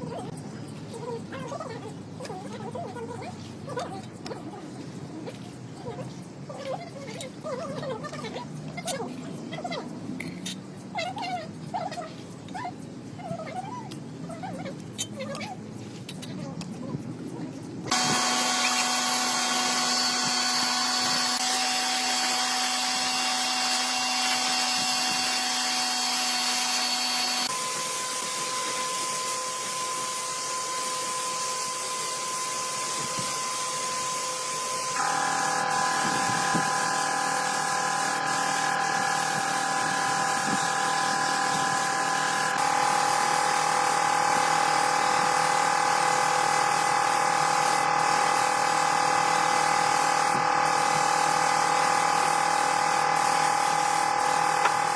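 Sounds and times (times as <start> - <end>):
electric power tool whining: 17.9 - 54.9.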